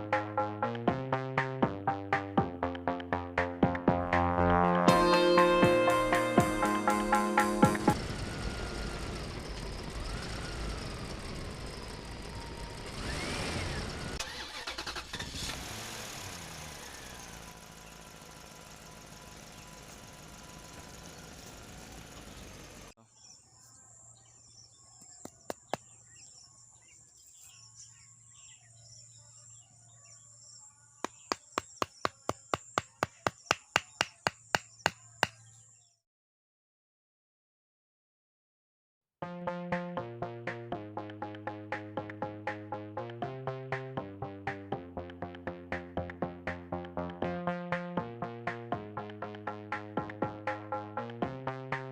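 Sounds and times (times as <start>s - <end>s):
vehicle engine: 7.7s - 23.0s
rapid sharp ticks: 31.0s - 35.4s.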